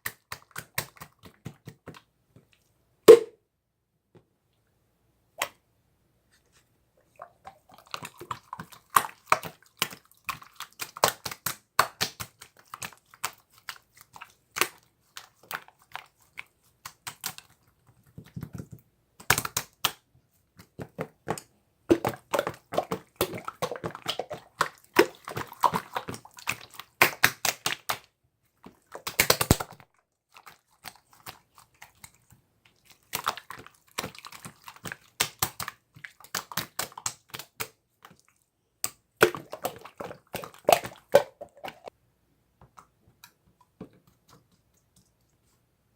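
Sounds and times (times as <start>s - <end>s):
slime clicking and popping: 29.0s - 29.8s.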